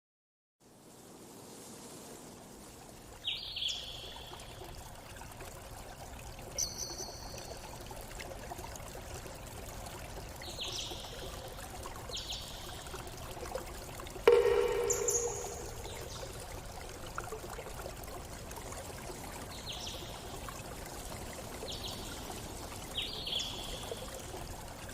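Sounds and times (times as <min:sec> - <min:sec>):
running water rushing: 0:00.6 - 0:24.9
forest birds calling: 0:06.6 - 0:07.4, 0:14.3 - 0:16.4
sudden low-pitched sound: 0:14.3 - 0:16.4.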